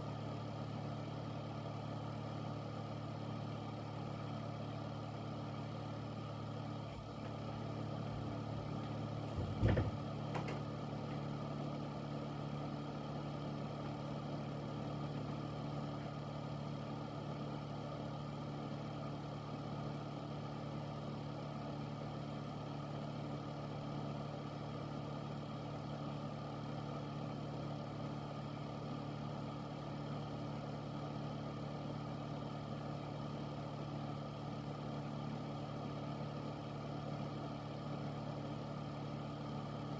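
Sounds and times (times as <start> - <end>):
fan humming with rushing air: 0.0 - 39.9
brief knock: 9.3 - 10.7.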